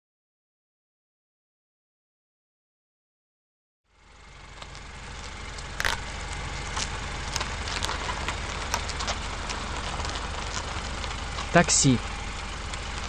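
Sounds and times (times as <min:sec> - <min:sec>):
car engine idling: 0:03.9 - 0:13.0
sharp click: 0:05.8 - 0:06.0.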